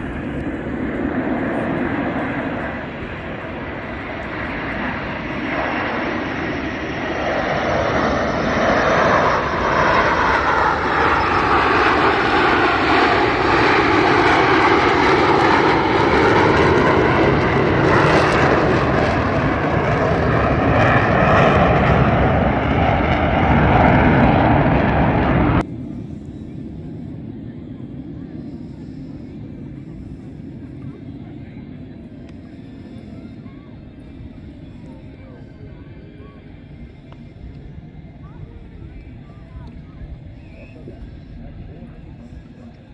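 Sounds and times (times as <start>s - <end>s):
jet roar flying past: 0.0s - 28.5s.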